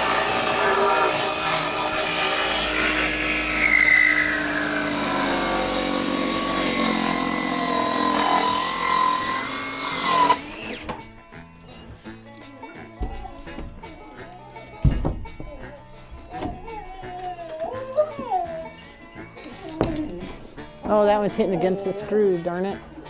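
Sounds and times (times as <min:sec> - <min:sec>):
power tool running on boards: 0:00.0 - 0:11.3.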